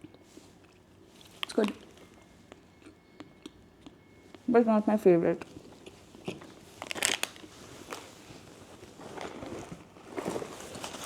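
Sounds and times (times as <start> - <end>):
packaging crackles and clicks: 5.4 - 8.1
packaging rustling: 6.2 - 11.0.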